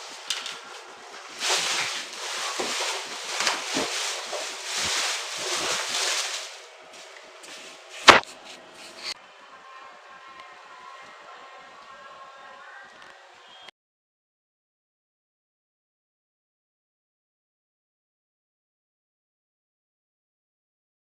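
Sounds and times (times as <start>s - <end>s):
packaging rustling and scraping: 0.0s - 9.2s
sharp knock: 8.0s - 8.3s.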